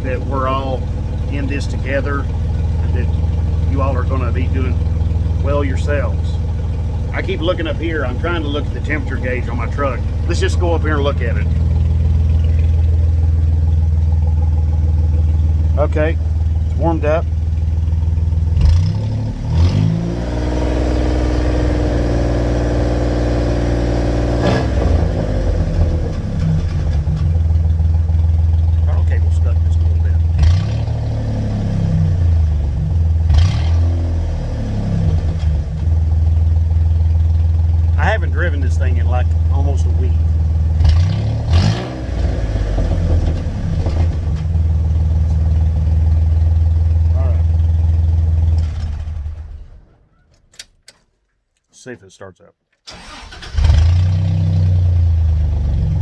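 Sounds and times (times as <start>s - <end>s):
engine throttle blip: 0.0s - 21.8s
truck engine idling and revving: 0.0s - 50.7s, 52.9s - 56.0s.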